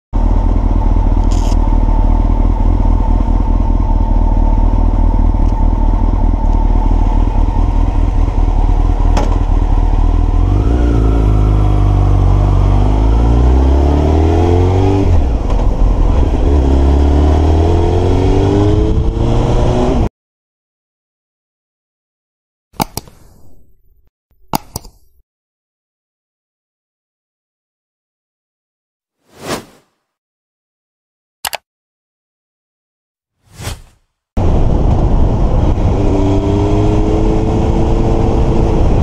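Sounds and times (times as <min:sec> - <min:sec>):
motorcycle engine idling and revving: 0:00.2 - 0:20.1, 0:34.4 - 0:39.0.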